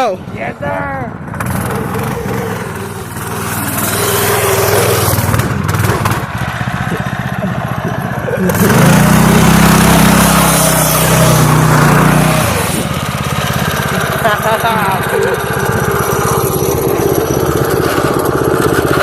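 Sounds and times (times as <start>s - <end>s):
small engine revving: 1.2s - 19.0s.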